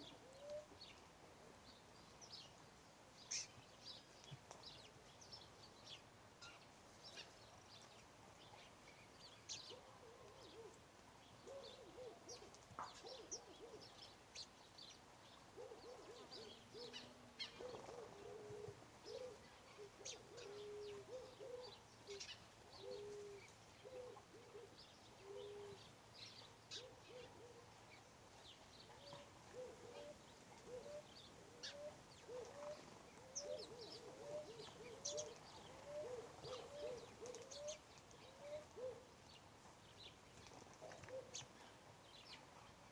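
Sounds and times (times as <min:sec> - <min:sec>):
low bird hooting: 0:33.4 - 0:37.8.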